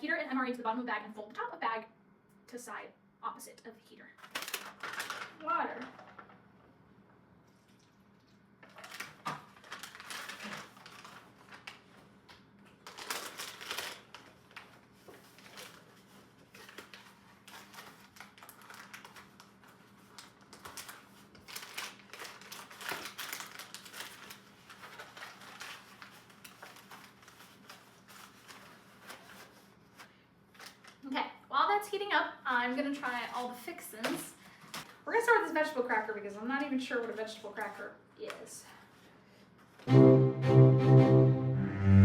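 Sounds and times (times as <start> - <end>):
plastic packaging crinkling: 4.2 - 6.4, 7.6 - 31.0.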